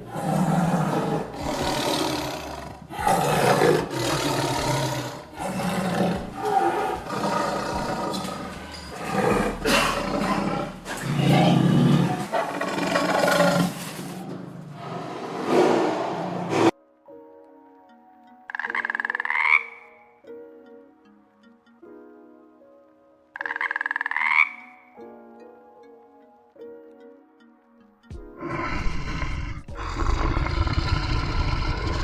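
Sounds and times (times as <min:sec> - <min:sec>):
big cat roaring and growling: 0:00.0 - 0:16.7, 0:28.4 - 0:32.0.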